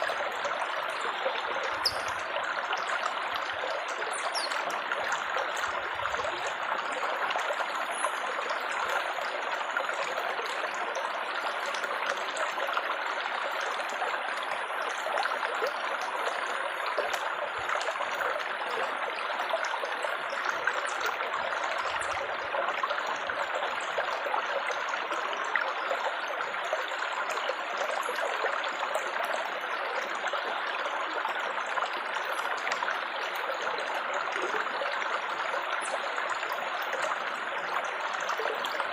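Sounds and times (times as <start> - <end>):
water trickling and babbling: 0.0 - 38.9
water droplet plinks: 1.6 - 2.3, 4.1 - 4.7.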